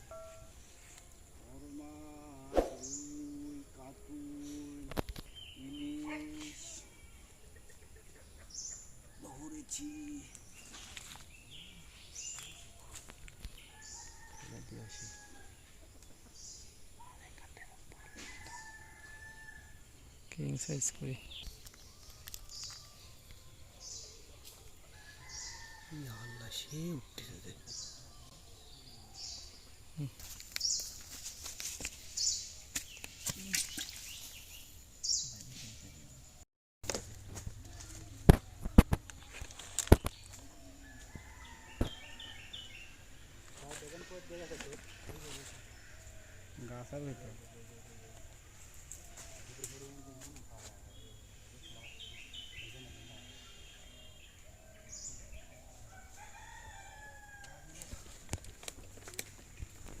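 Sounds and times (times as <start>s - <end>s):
small birds chirping: 0.0s - 18.8s, 20.0s - 36.4s
distant rooster crowing: 13.6s - 15.8s, 18.0s - 19.9s, 24.8s - 26.8s, 40.5s - 43.1s, 55.7s - 58.1s.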